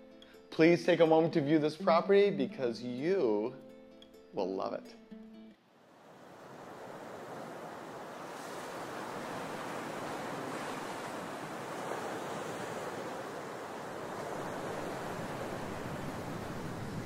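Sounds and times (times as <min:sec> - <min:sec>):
ocean surf: 0:05.8 - 0:17.0.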